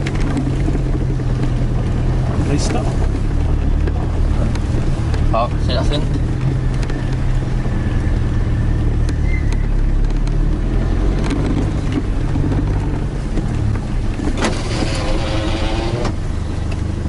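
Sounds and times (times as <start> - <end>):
engine running with low drone: 0.0 - 17.0.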